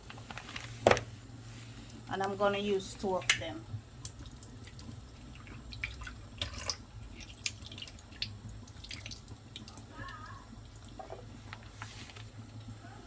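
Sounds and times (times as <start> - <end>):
liquid dripping into sink: 3.2 - 11.3.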